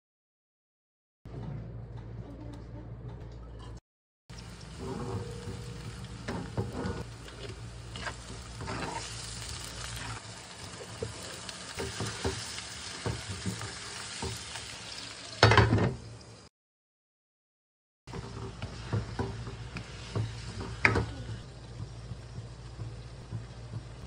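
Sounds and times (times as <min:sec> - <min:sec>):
food sizzling in a wok: 0:04.3 - 0:16.5, 0:18.1 - 0:24.0
spatula scraping: 0:04.6 - 0:10.3.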